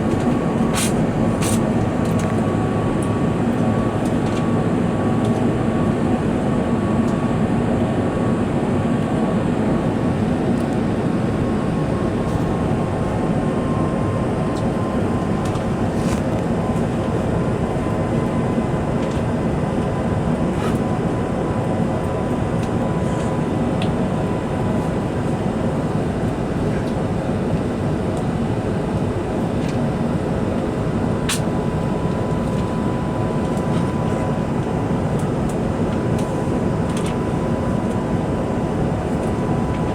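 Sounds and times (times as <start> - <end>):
aircraft cabin engine rush: 0.0 - 39.9
faint steady whine: 23.4 - 39.9.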